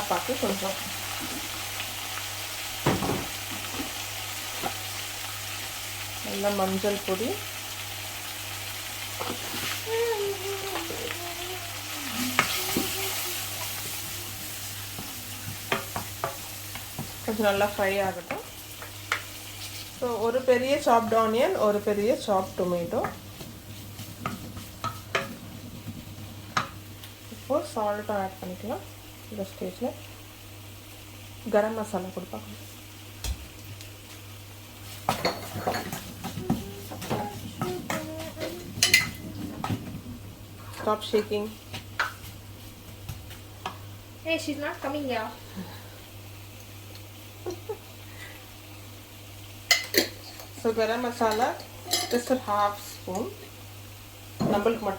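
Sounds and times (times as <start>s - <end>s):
food sizzling in a pan: 0.0s - 54.9s
utensils and pots clinking: 35.1s - 39.8s, 49.7s - 52.4s.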